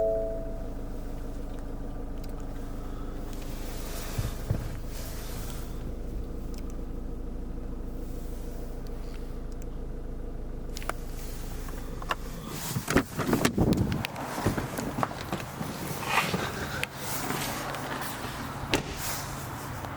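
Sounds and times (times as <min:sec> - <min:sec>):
car engine idling: 0:00.0 - 0:19.9
clunks and knocks: 0:04.1 - 0:05.5, 0:12.0 - 0:19.2.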